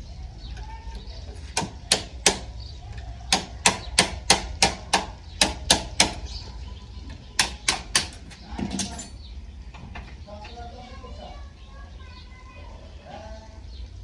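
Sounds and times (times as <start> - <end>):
sharp hammer strikes: 1.5 - 2.5, 3.3 - 6.3, 7.4 - 8.3.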